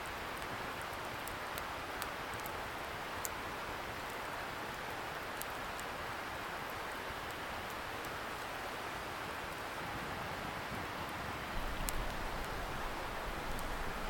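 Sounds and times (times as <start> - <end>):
campfire crackling and popping: 0.0 - 8.6, 10.8 - 14.0
distant river rushing: 9.0 - 14.0.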